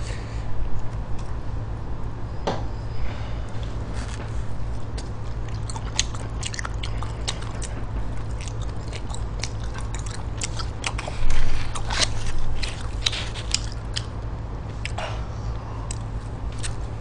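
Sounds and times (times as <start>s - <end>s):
steady low hum: 0.0s - 17.0s
wet chewing and mouth clicks: 4.8s - 15.0s, 15.9s - 16.9s.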